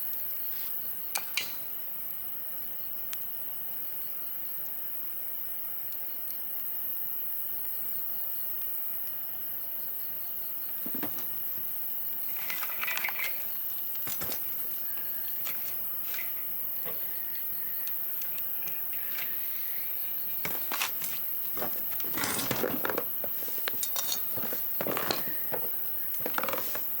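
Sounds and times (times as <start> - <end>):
insects chirring: 0.0 - 27.0
rustling and handling noise: 10.7 - 27.0.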